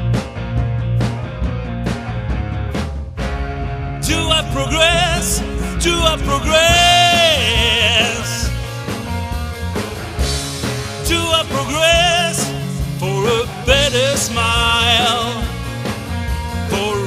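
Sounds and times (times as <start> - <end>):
indie rock band playing: 0.0 - 17.0
wavering melodic line: 4.0 - 8.3.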